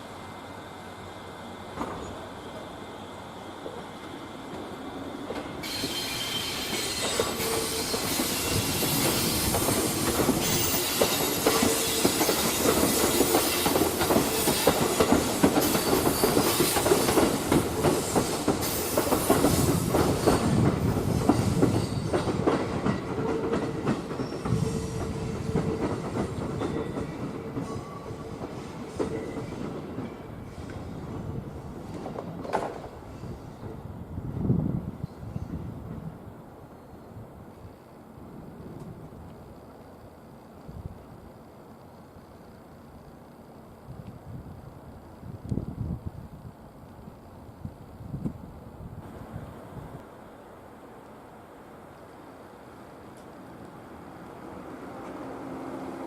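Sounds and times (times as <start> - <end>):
train whine: 0.0 - 56.0
train wheels clattering: 5.2 - 31.2.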